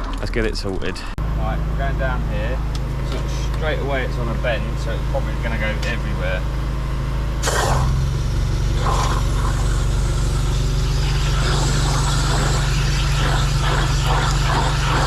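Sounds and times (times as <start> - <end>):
drain jetter engine running: 1.4 - 15.0
high-pressure water spraying: 7.4 - 15.0.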